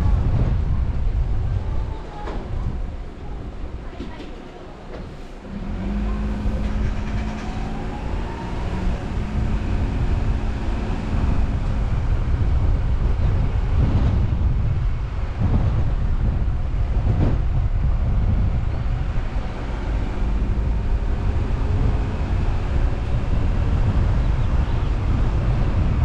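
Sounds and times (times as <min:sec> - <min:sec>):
road and tyre noise: 0:00.0 - 0:26.0
car engine hum: 0:05.5 - 0:26.0.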